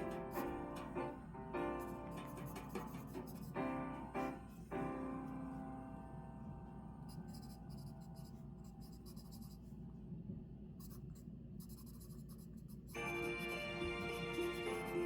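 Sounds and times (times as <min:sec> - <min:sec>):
pen scratching on paper: 0:00.0 - 0:01.0, 0:01.8 - 0:03.6, 0:07.1 - 0:09.7, 0:10.8 - 0:15.0
background music: 0:00.0 - 0:07.0, 0:13.0 - 0:15.0.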